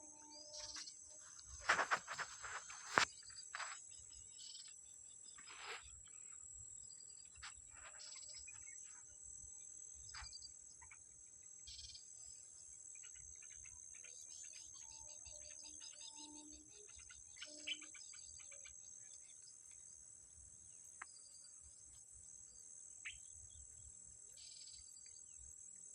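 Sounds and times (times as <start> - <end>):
insects chorus: 0.0 - 25.9
bird chirps: 13.0 - 19.5.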